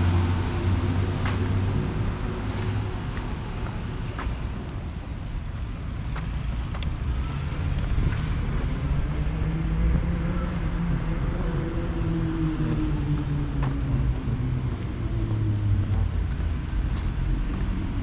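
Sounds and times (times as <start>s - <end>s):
vehicle engine running: 5.2s - 8.2s.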